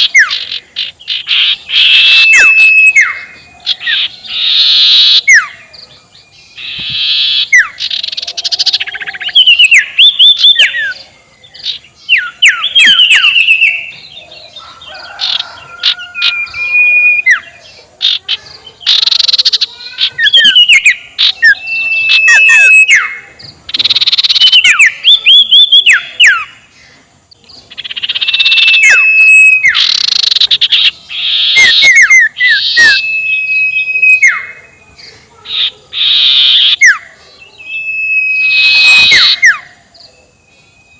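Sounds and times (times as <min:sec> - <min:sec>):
owl screeching: 0:00.0 - 0:05.6, 0:06.6 - 0:11.0, 0:14.6 - 0:18.2, 0:18.8 - 0:26.6, 0:27.7 - 0:34.6, 0:35.4 - 0:37.0, 0:37.6 - 0:39.8
high falling chirp notes: 0:00.0 - 0:05.8, 0:06.5 - 0:11.0, 0:12.0 - 0:14.2, 0:18.8 - 0:26.7, 0:27.7 - 0:34.8.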